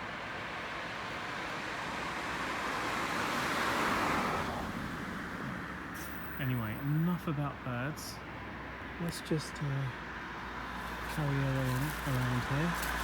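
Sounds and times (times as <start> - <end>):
car passing by: 0.4 - 6.8, 10.1 - 13.0.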